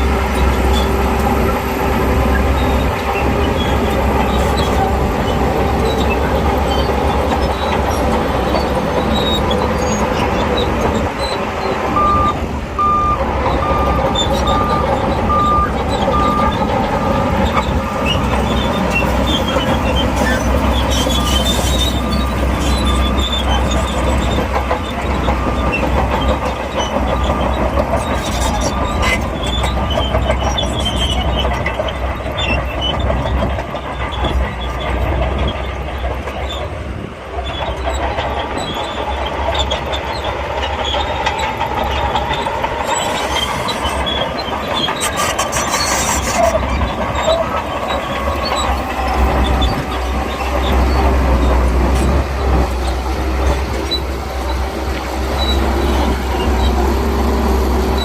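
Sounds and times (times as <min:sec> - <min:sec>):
diesel engine running: 0:00.0 - 0:58.0
steel tracks clanking and squealing: 0:00.0 - 0:58.0
reversing alarm beeping: 0:12.0 - 0:19.8.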